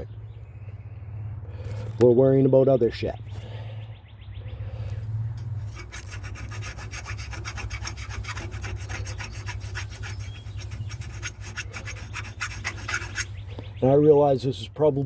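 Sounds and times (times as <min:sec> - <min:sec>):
hand file on metal: 0:05.4 - 0:13.5.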